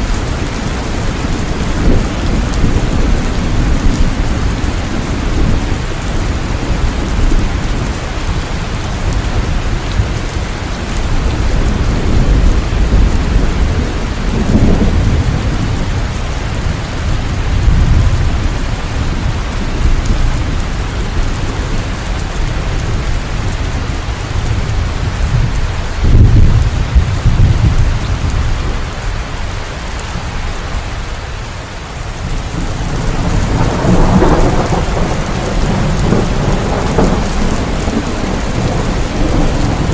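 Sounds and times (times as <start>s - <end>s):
rolling thunder rumbles: 0.0s - 30.5s, 32.2s - 39.9s
heavy rain: 0.0s - 39.9s.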